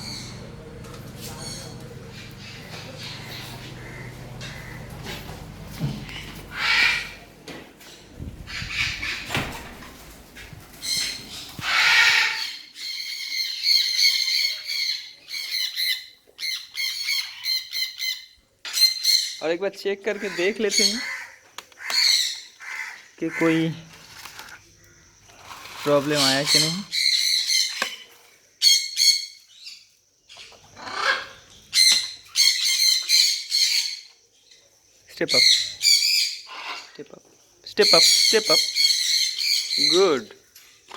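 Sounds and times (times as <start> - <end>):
low rumbling noise: 0.0 - 11.7
parrots squawking: 0.0 - 19.4, 20.1 - 23.7, 25.5 - 28.0, 30.4 - 34.0, 35.3 - 37.0, 37.8 - 40.2.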